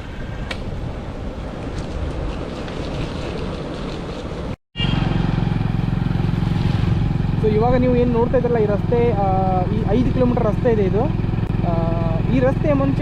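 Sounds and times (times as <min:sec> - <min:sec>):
wind rushing over microphone: 0:00.0 - 0:04.6
motorcycle engine running: 0:03.8 - 0:13.0.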